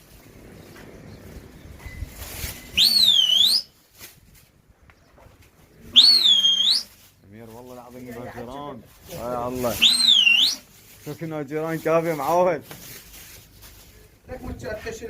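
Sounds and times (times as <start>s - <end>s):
swooping whistle blasts: 2.5s - 3.8s, 6.0s - 6.9s, 9.8s - 10.7s.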